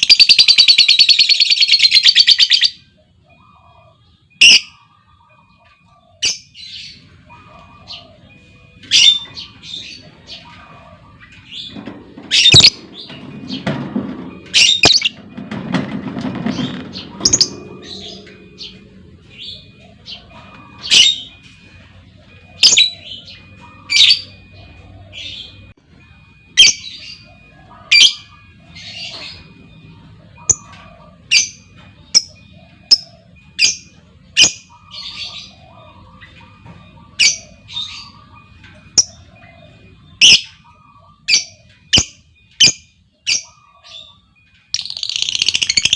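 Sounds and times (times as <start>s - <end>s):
lovebird chirping: 0.0s - 13.7s, 30.4s - 45.9s.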